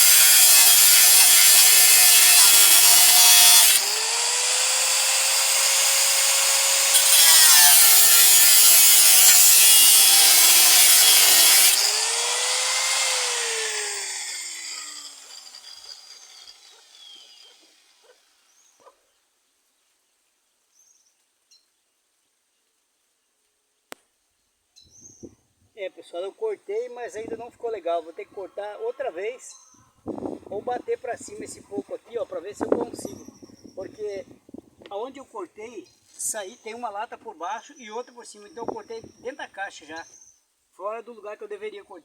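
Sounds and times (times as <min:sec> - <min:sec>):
grinder disc spinning down: 0:00.0 - 0:17.8
angle grinder cutting sheet metal: 0:00.0 - 0:18.2.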